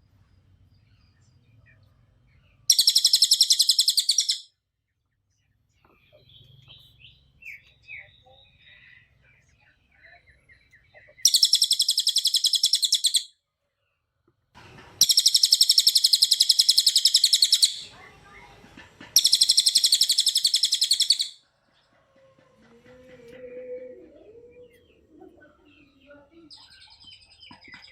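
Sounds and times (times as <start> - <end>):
bird trilling: 2.7 - 4.5, 11.0 - 13.3, 15.0 - 21.4.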